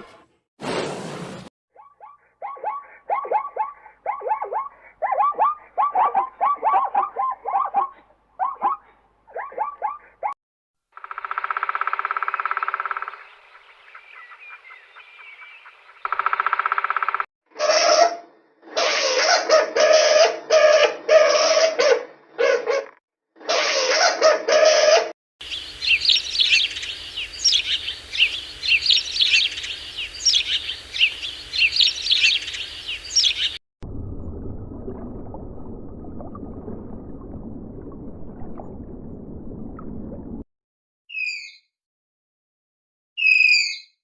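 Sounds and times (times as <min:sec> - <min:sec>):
birds chirping rapidly: 0:12.0 - 0:17.2, 0:25.4 - 0:33.6.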